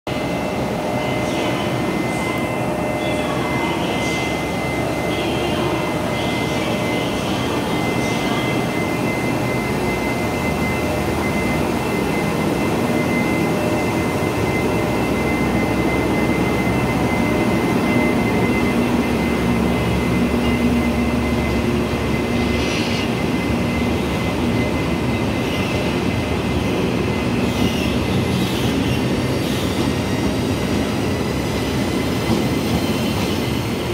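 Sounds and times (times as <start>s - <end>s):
diesel locomotive engines rumbling: 0.1s - 33.9s
train clanks: 26.7s - 33.9s.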